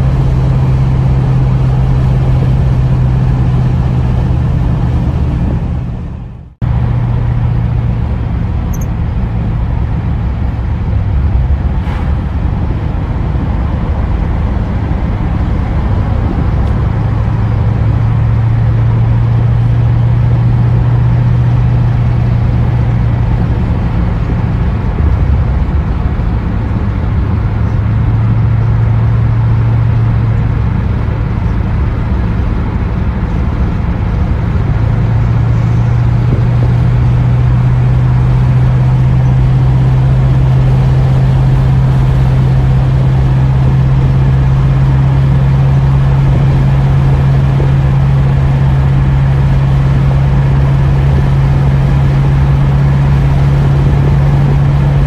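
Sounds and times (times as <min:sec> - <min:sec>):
car engine and exhaust droning: 0:00.0 - 0:55.0
tyre and road noise: 0:00.0 - 0:55.0.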